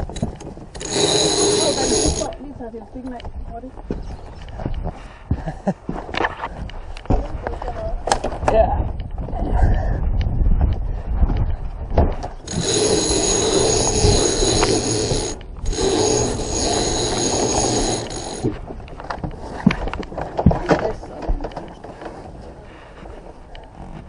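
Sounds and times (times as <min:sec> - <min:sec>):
halyard winch whirring: 0:00.0 - 0:02.4, 0:12.4 - 0:18.5.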